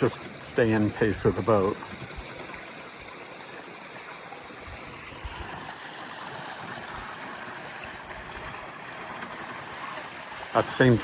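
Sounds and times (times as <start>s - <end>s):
water splashing along hull: 0.0s - 11.0s.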